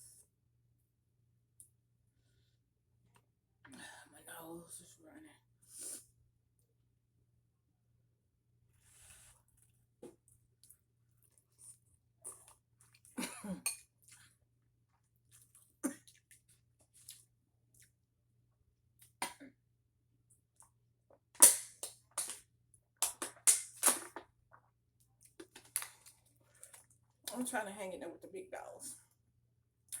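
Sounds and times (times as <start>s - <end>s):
person eating noodles: 10.6s - 13.2s, 15.3s - 17.9s
chewing and mouth noises: 13.8s - 18.0s.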